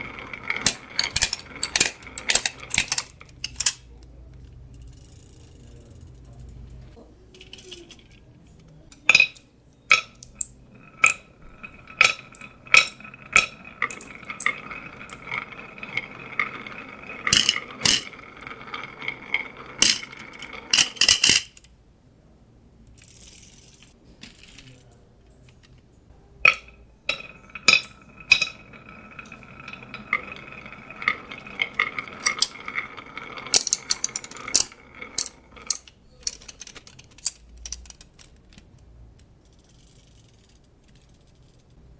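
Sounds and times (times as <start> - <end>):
marbles rolling down wooden run: 0.0 - 3.7, 9.9 - 21.6, 26.5 - 38.4
marbles clicking on track pieces: 0.0 - 3.9, 4.8 - 21.7, 26.4 - 41.8.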